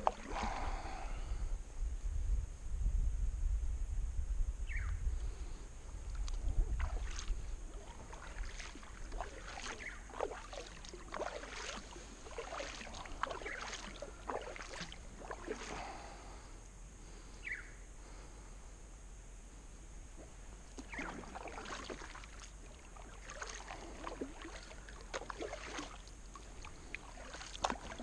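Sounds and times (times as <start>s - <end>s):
paddle splashing in water: 0.0s - 1.0s, 6.1s - 16.2s, 20.6s - 28.0s.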